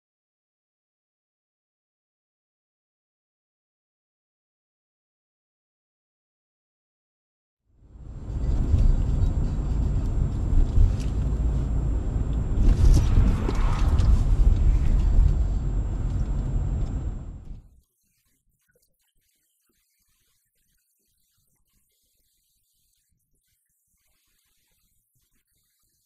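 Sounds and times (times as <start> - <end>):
car engine and road rumble: 7.8 - 17.7
faint high whine: 7.8 - 17.8.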